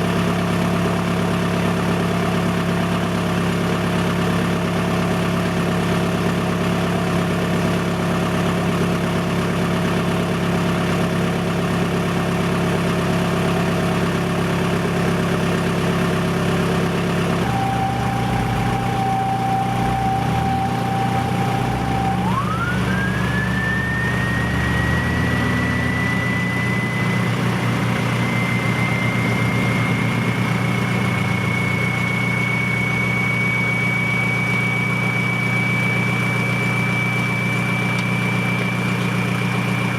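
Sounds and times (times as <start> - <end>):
diesel engine idling: 0.0 - 39.9
thin rising whine: 15.1 - 39.9.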